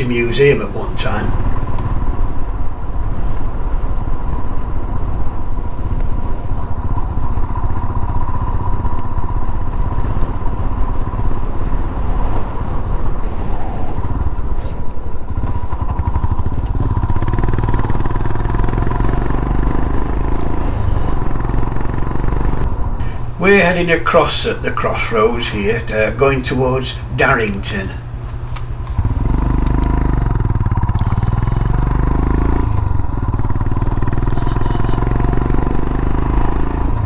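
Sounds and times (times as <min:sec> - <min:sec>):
motorcycle engine running: 0:15.4 - 0:23.3, 0:28.0 - 0:37.0.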